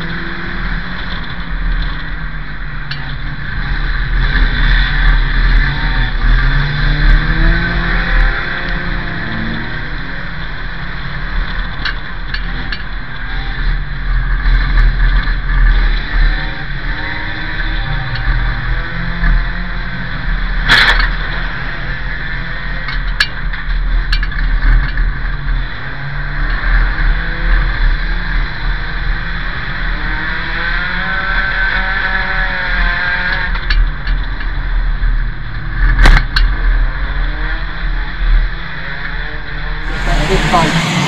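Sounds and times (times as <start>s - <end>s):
race car engine revving: 3.4s - 11.8s, 39.5s - 41.0s.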